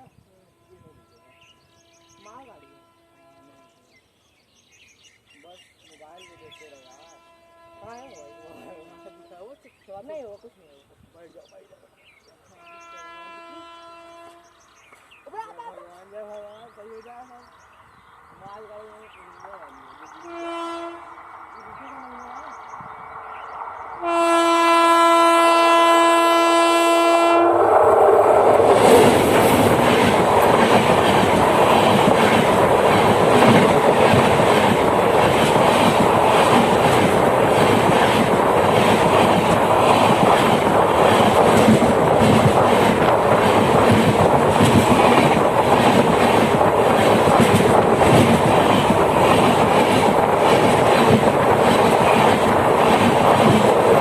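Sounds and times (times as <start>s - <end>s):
train horn blast: 0.4s - 4.0s, 6.4s - 9.6s, 12.6s - 14.7s, 20.2s - 21.2s, 24.0s - 27.8s
train wheels rolling: 27.1s - 54.0s
wheels clacking over rail joints: 28.6s - 54.0s.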